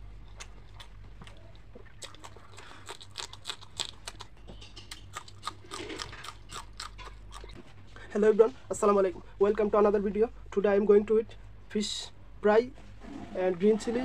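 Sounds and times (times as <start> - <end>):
crisp chewing crunches: 0.2 - 7.6.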